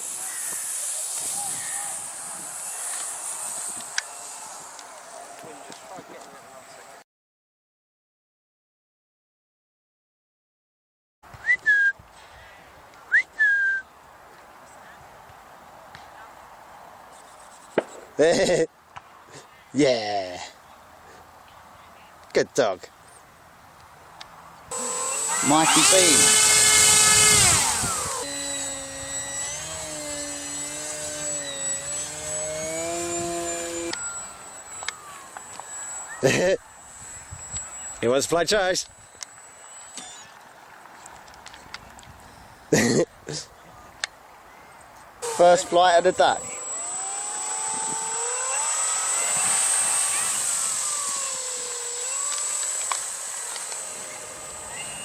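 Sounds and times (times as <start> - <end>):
model plane engine droning: 0.0 - 6.9, 24.7 - 40.5, 45.2 - 55.0
sharp click: 34.8 - 35.7.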